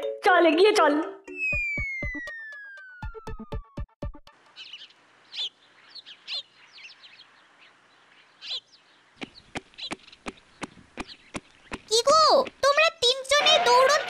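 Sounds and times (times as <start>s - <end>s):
birds chirping: 4.3s - 14.0s
faint background hiss: 4.4s - 11.7s.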